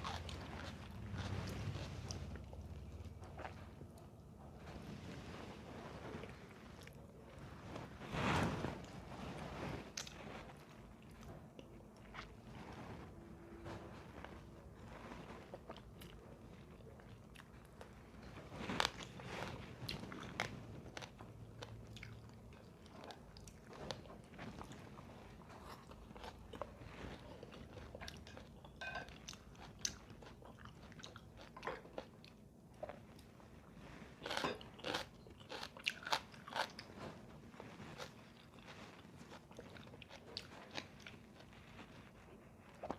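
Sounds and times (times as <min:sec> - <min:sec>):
person chewing crunchy food: 0:00.0 - 0:04.2, 0:14.8 - 0:33.3, 0:34.1 - 0:42.9.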